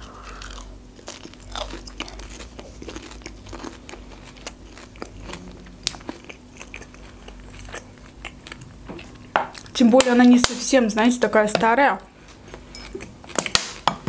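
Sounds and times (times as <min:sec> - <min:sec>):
person chewing food: 0:00.0 - 0:09.8.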